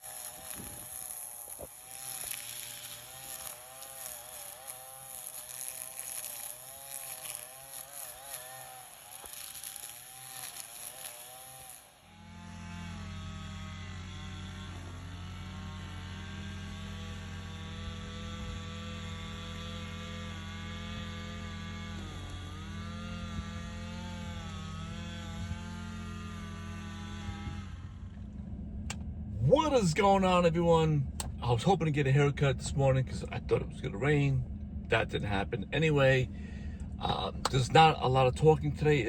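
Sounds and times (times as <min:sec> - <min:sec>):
gas string trimmers running: 0:00.0 - 0:39.0
deep engine hum: 0:12.2 - 0:39.0.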